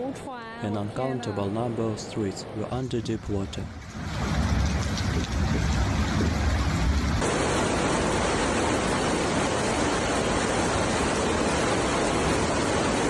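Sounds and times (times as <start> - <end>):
floodwater rushing: 2.7 - 8.8
low rumble: 2.8 - 7.2.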